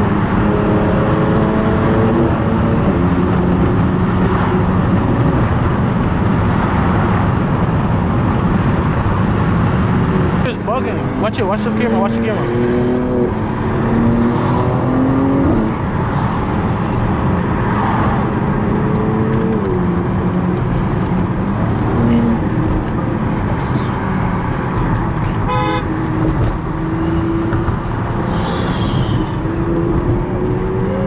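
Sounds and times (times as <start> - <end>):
cars driving on road: 0.0 - 31.0
car horn toot: 25.4 - 25.9.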